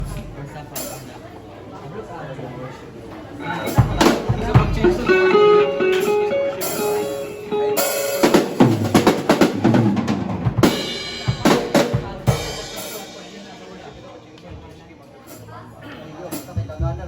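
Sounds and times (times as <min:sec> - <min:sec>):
drum kit playing: 0:00.0 - 0:01.1, 0:03.4 - 0:13.9.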